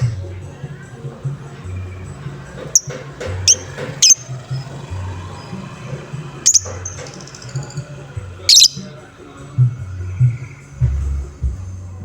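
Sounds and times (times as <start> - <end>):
bird high-pitched chirps: 2.7 - 4.7, 6.4 - 7.9, 8.5 - 8.9.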